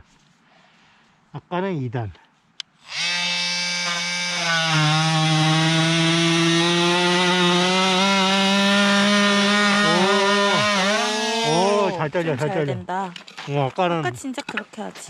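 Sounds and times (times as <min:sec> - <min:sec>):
oscillating multi-tool sawing wood: 0:02.8 - 0:12.7.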